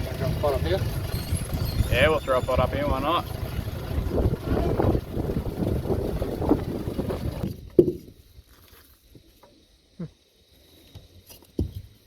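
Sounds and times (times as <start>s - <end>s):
small boat noise: 0.0s - 7.9s
wind on microphone: 3.6s - 7.7s.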